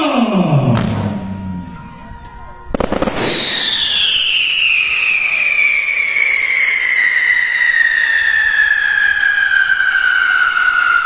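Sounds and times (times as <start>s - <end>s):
firework whistle falling in pitch: 0.8s - 11.0s.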